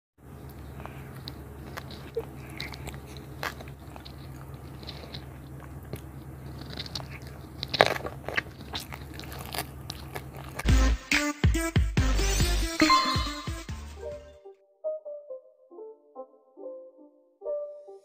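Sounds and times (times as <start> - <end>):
low steady hum: 0.2 - 10.7
person chewing food: 0.2 - 10.8
wet mouth clicks and crunches: 0.4 - 10.7.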